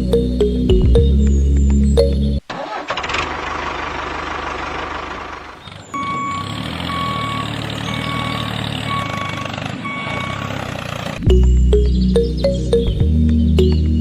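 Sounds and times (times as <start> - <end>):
engine running: 1.6 - 13.8
reversing alarm beeping: 5.9 - 10.6.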